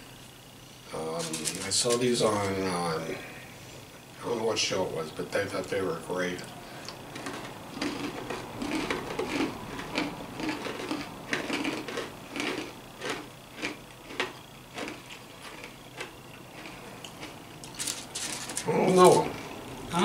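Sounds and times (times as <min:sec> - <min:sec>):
chewing hard pretzel crunches: 0:01.2 - 0:02.1, 0:06.4 - 0:19.4.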